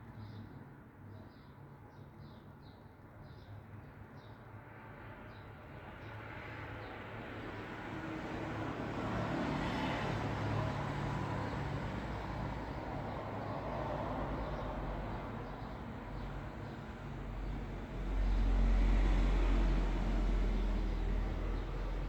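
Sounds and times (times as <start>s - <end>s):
vehicle passing: 16.2s - 22.0s.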